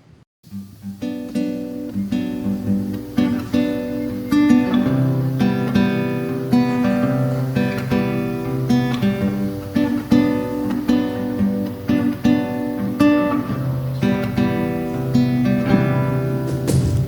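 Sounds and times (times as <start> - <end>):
guitar chords strummed: 0.5 - 17.0.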